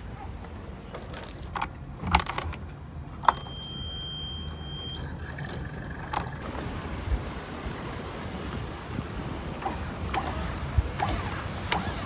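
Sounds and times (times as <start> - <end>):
alarm buzzer beep: 3.2 - 5.0.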